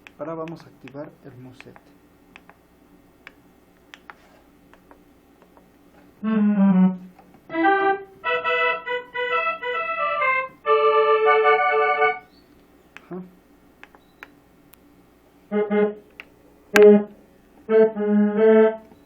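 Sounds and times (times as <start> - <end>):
faint clicks: 0.0 - 2.6
keyboard accordion sound: 7.5 - 12.3.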